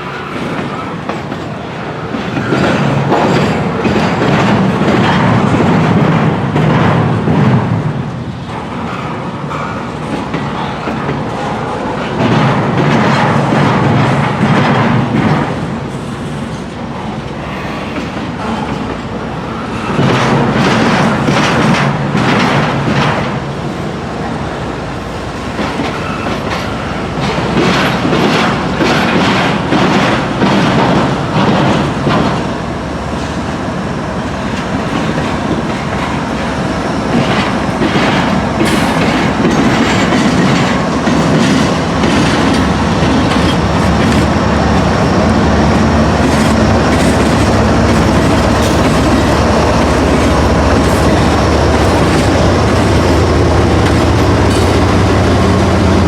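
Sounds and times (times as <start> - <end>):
diesel locomotive drone: 0.0 - 56.0
train wheels clacking: 0.0 - 56.0.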